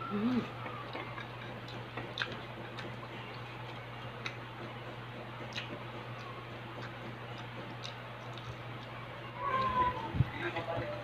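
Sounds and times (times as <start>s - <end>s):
steady low hum: 0.0s - 11.0s
mouth clicks and smacks: 0.6s - 9.0s.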